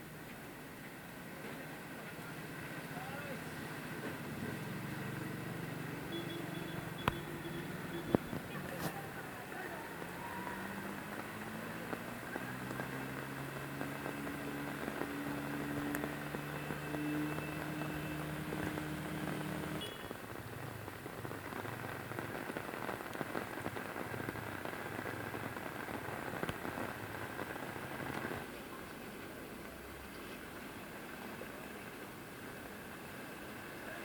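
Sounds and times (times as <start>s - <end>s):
rain pattering: 0.0s - 34.0s
low engine hum: 2.5s - 19.8s.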